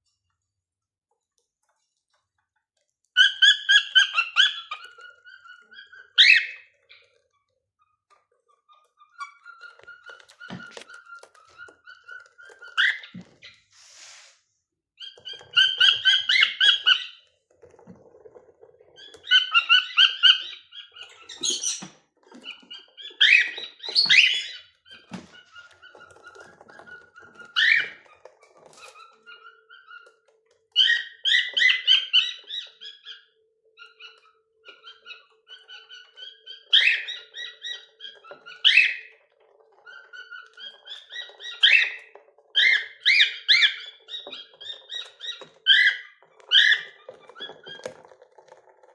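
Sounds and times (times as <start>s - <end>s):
cockatiels whistling and chirping: 3.2s - 7.1s, 9.1s - 13.3s, 15.0s - 17.2s, 19.0s - 28.1s, 28.7s - 39.2s, 40.2s - 48.0s.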